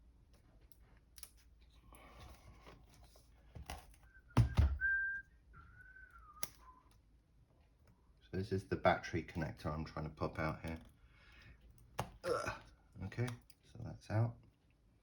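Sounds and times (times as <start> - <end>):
man whistling: 4.0 - 7.0.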